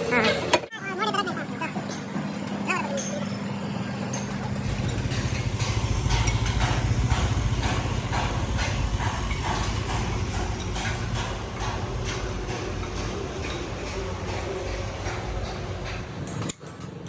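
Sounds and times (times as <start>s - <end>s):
engine humming: 0.0s - 17.0s
sharp knocks: 4.2s - 16.1s.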